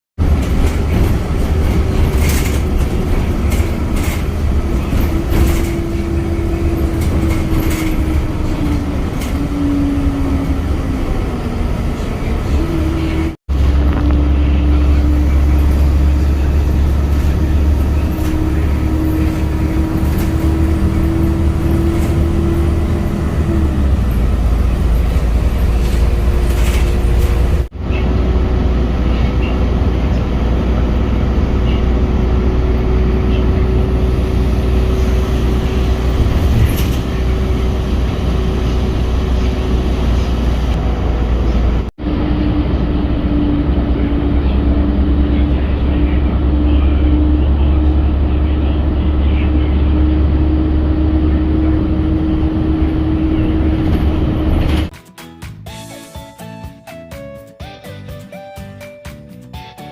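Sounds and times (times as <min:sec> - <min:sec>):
vehicle engine droning: 0:00.2 - 0:54.9.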